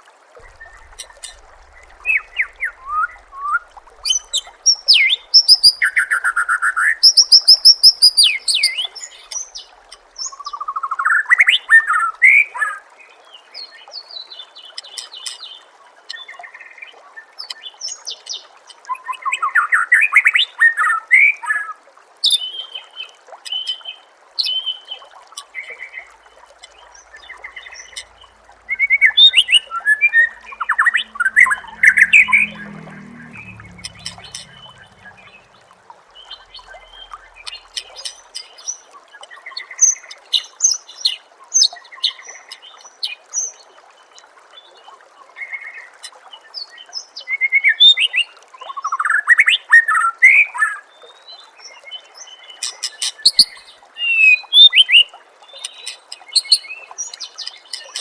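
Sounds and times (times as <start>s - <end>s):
trickle of running water: 0.0s - 58.0s
songbird singing: 0.4s - 10.7s, 25.5s - 40.9s.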